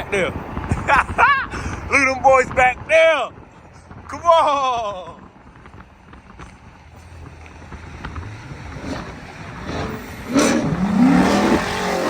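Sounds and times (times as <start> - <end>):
car engine revving: 7.2 - 12.0.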